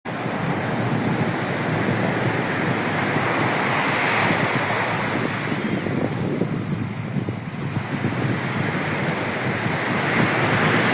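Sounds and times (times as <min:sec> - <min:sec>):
sea surf breaking: 0:00.1 - 0:10.9
wind buffeting microphone: 0:00.1 - 0:10.9.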